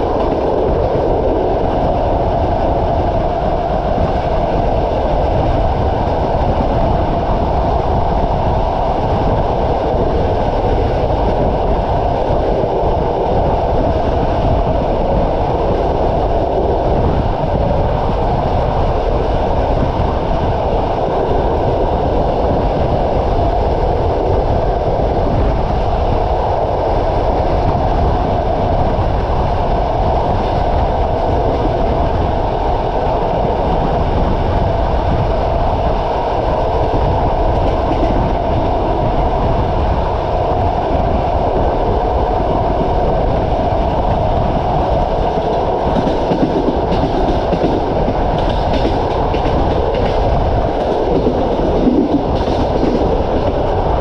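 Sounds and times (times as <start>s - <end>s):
train wheels rumbling on rails: 0.0s - 54.0s
wheels clacking over rail joints: 45.3s - 54.0s.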